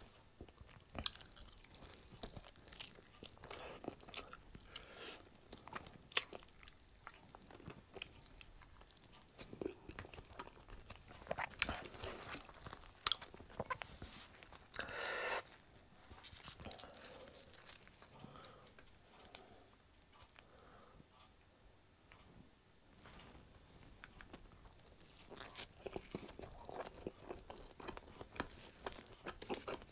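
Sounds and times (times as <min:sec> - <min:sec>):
chewing and biting: 0:00.4 - 0:14.9, 0:15.5 - 0:18.2, 0:24.0 - 0:29.9.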